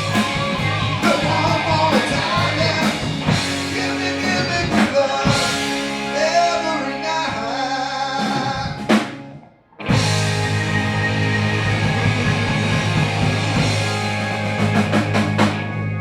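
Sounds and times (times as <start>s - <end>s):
drum kit: 0.0s - 6.2s, 8.2s - 9.3s, 9.9s - 16.0s
person singing: 0.0s - 9.0s
blues-rock band playing: 0.0s - 16.0s
electric guitar: 0.0s - 16.0s.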